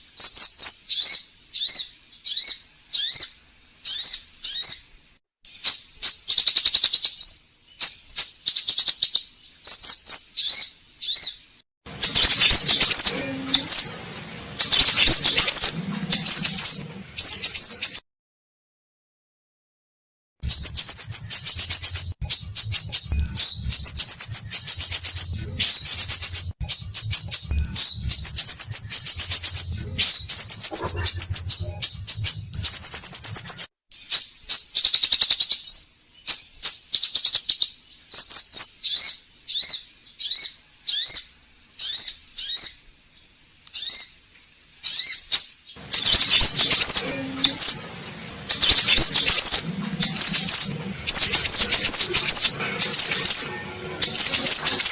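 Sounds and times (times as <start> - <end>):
low hum: 11.9 - 18.0, 20.4 - 33.7, 45.8 - 54.9
bird chirping high sharp notes: 12.0 - 18.0, 20.4 - 35.6, 44.9 - 54.9.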